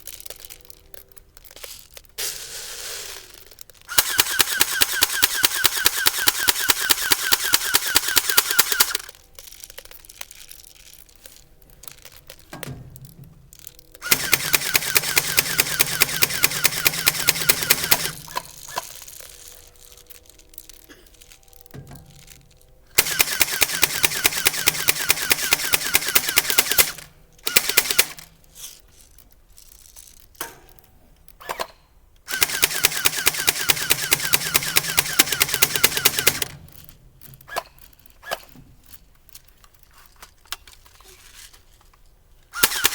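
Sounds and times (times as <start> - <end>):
airsoft gun firing automatic bursts: 3.9 - 9.1, 14.0 - 18.9, 22.9 - 28.3, 32.3 - 36.8, 42.5 - 42.9.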